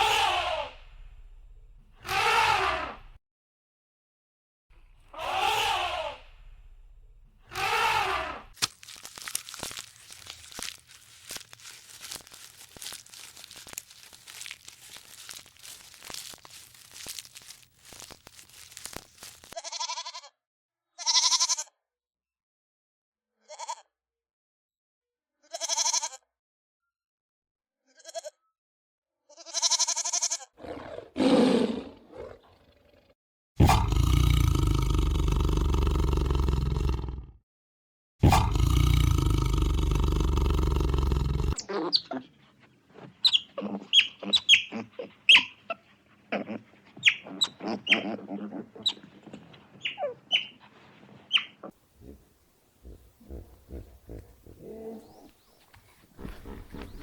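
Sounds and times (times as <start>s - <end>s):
faint crackling with clicks: 8.6s - 19.6s
goat bleats: 9.1s - 20.2s, 21.0s - 21.6s, 23.5s - 23.8s, 25.5s - 26.2s, 28.0s - 28.3s, 29.3s - 30.5s, 43.0s - 52.2s.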